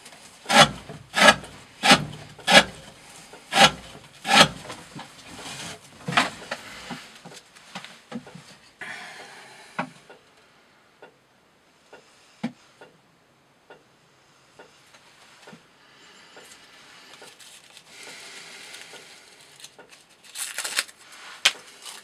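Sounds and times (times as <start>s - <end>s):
knife slicing through rope: 0.5s - 2.9s, 3.5s - 4.8s.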